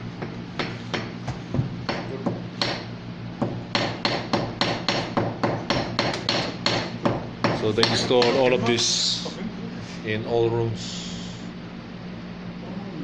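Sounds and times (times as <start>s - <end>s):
hammer striking: 1.9s - 8.5s.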